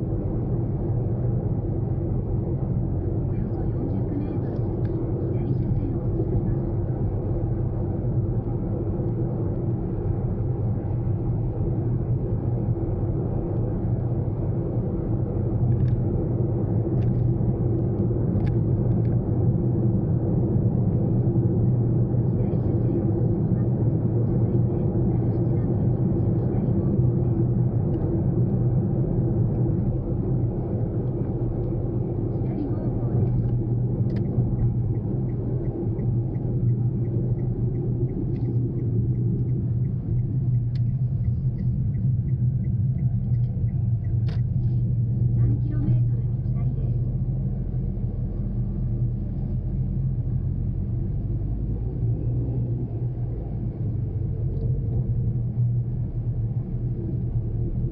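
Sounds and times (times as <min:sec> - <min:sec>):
car engine and road noise: 0:00.0 - 0:57.9
light even ticking: 0:34.1 - 0:44.7.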